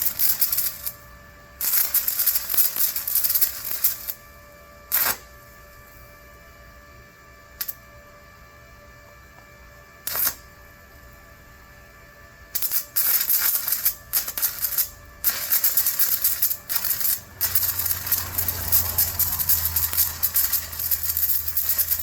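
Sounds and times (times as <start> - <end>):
welding arc strike: 0.0 - 1.0, 1.6 - 4.2, 4.9 - 5.4, 10.0 - 10.5, 12.5 - 22.0
welding electrode crackling: 0.0 - 1.0, 1.6 - 4.3, 4.9 - 5.6, 7.6 - 7.9, 10.0 - 10.6, 12.5 - 22.0.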